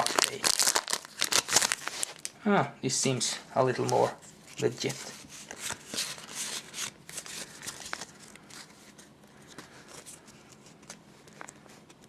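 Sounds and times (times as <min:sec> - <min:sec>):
foil wrapper crinkling and tearing: 0:00.0 - 0:02.3, 0:04.5 - 0:08.7
cards clicking and rustling: 0:03.8 - 0:12.0.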